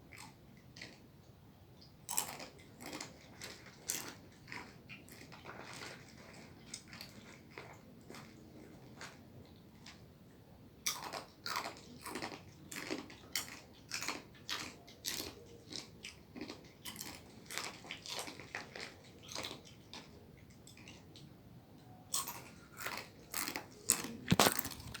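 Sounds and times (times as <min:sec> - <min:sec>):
crunchy food chewing: 0:00.1 - 0:01.0, 0:02.0 - 0:10.1, 0:10.8 - 0:21.4, 0:22.1 - 0:25.0.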